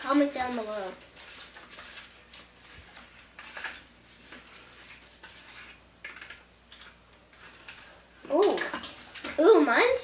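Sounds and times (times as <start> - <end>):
light scraping in a bowl: 0.0 - 9.7
slime squelching: 0.0 - 10.0.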